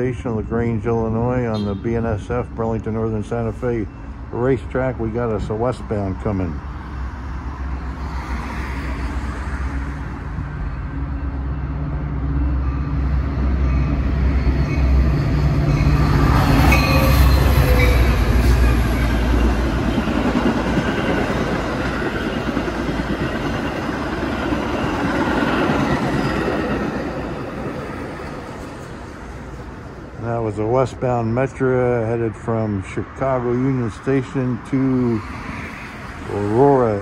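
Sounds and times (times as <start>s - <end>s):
coaches rumbling on rails: 0.0s - 37.0s
locomotive engine throbbing: 9.7s - 31.6s.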